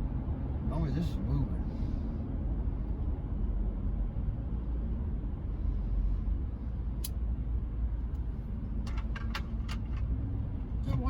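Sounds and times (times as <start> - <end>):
road and engine rumble in cab: 0.0 - 11.0.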